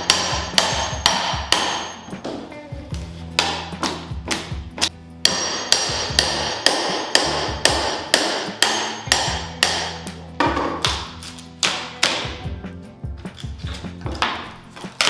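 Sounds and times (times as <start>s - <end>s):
hammer blows ringing: 0.0s - 2.2s, 5.2s - 10.0s.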